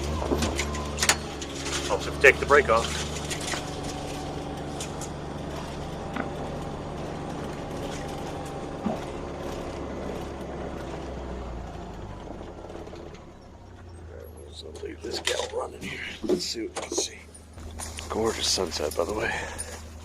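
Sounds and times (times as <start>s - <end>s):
utility vehicle engine running: 0.0s - 20.0s.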